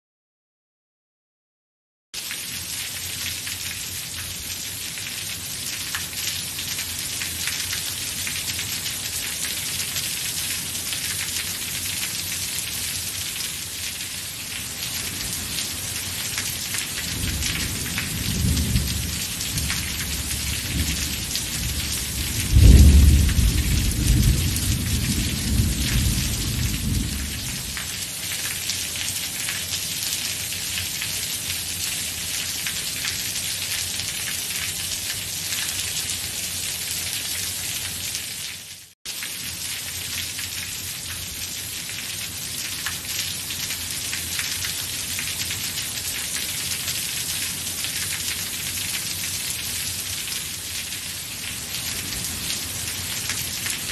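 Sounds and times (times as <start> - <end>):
steady rain falling: 2.2 - 53.9
thunder rumbling: 17.1 - 27.8.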